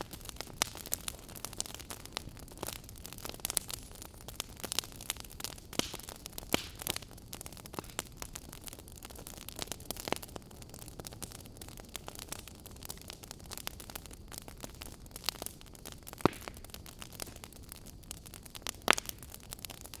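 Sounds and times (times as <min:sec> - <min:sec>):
wood fire crackling: 0:00.0 - 0:20.0
sharp pops and snaps: 0:05.8 - 0:07.1, 0:16.2 - 0:17.4, 0:18.8 - 0:19.4.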